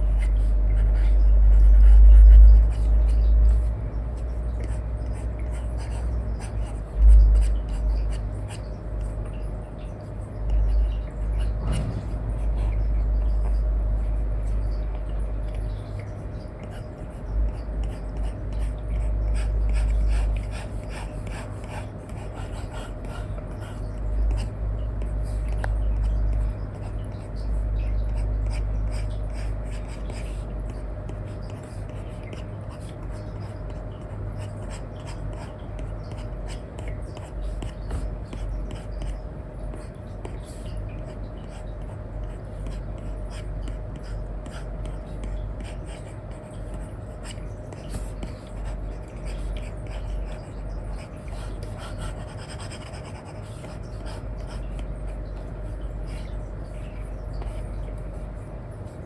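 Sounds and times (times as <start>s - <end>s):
faint hum: 0.0s - 59.0s
low rumble: 10.7s - 15.4s.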